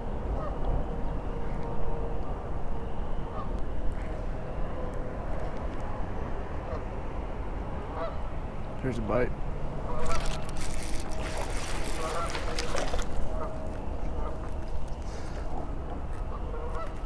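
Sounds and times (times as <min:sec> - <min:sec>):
geese honking faintly: 0:03.2 - 0:04.9, 0:06.6 - 0:06.9, 0:07.9 - 0:08.2, 0:09.8 - 0:10.4, 0:11.4 - 0:17.0.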